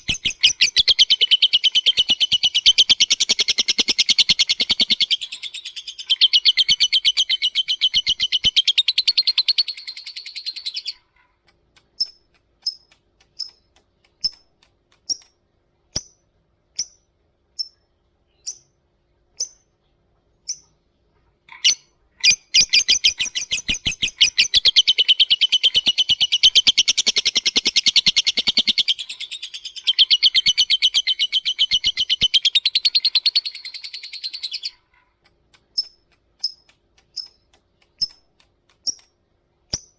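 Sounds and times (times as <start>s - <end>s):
lovebird chattering trill: 0.0s - 11.0s, 21.5s - 34.8s
lovebird sharp ticks: 11.5s - 15.4s, 31.7s - 39.9s.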